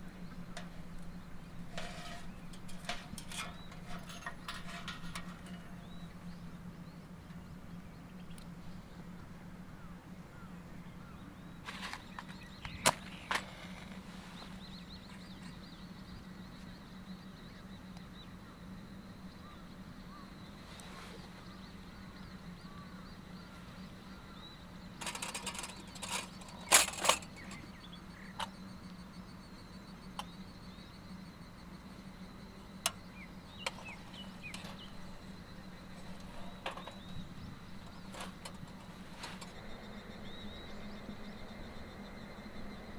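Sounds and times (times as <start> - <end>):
steady low hum: 0.0 - 42.9
sharp clicks and knocks: 0.5 - 6.3, 25.0 - 27.8, 32.8 - 39.7.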